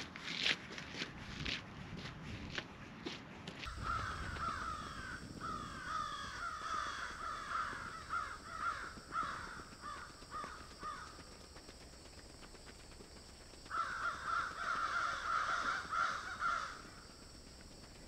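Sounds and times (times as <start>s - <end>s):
footsteps on gravel: 0.0s - 4.8s
birds calling: 3.7s - 12.2s, 12.9s - 17.5s.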